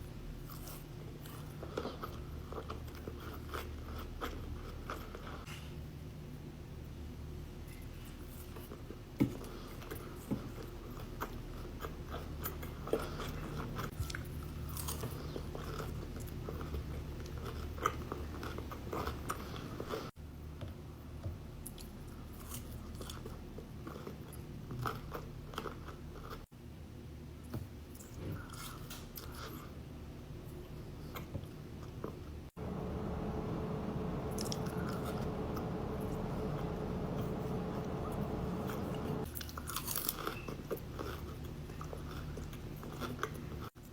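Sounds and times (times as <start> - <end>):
chewing crunchy food: 0.4 - 5.6, 8.3 - 20.1, 21.6 - 26.5, 27.9 - 29.8, 38.2 - 43.9
low steady hum: 32.6 - 39.4.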